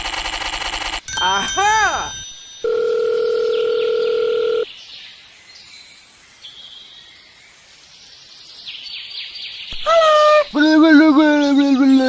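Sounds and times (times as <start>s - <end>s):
steady dial tone: 2.6s - 4.6s.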